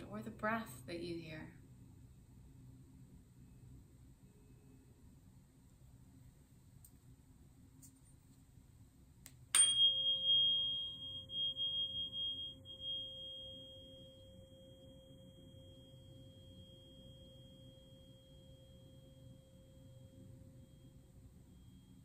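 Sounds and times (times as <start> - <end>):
tuning fork ringing: 9.5 - 22.0.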